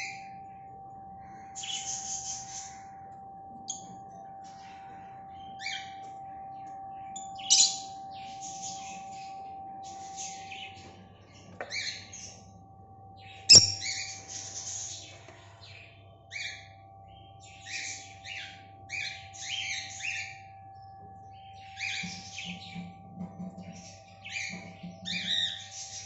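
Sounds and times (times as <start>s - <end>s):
lovebirds chirping: 4.5s - 12.5s, 13.2s - 20.4s.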